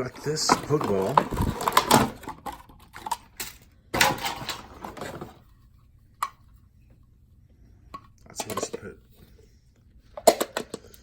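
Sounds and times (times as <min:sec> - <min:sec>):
packaging rustling: 0:00.0 - 0:03.3.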